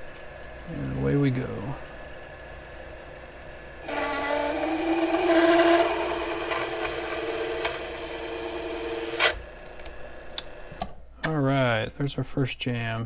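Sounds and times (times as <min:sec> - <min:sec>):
drill bit chattering squeal: 0:03.9 - 0:09.2.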